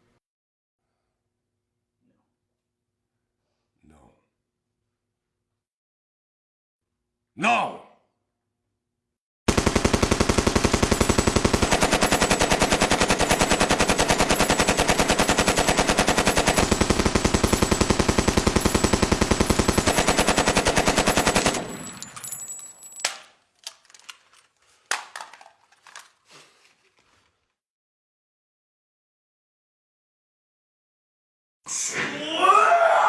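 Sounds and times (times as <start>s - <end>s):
automatic gunfire: 9.5s - 22.4s
clicks and clinks: 17.4s - 26.2s.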